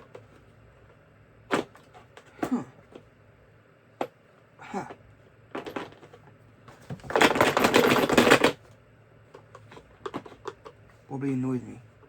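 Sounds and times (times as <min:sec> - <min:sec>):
screwdriver set parts clattering: 0:07.0 - 0:08.6.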